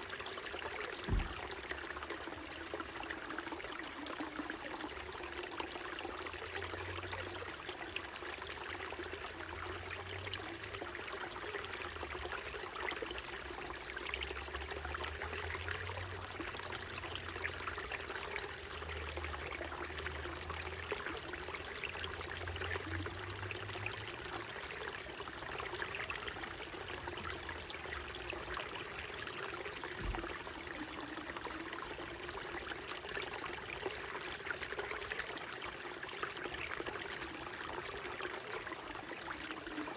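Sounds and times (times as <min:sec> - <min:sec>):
low thump: 0:01.1 - 0:01.5, 0:30.0 - 0:30.3.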